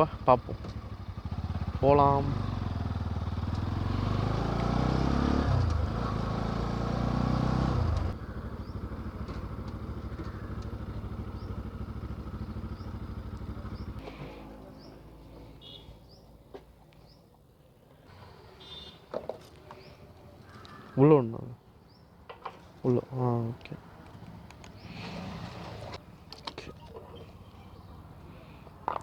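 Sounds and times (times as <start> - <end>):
motorcycle engine accelerating: 0.0 - 15.3.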